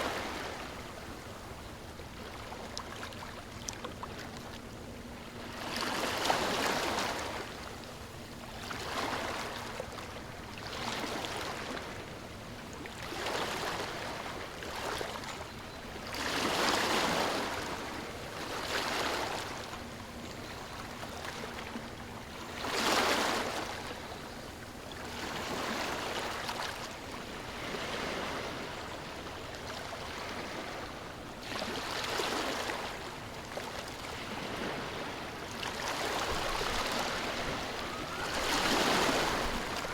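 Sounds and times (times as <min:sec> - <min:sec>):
ocean waves breaking: 0:16.1 - 0:24.1, 0:25.0 - 0:39.9.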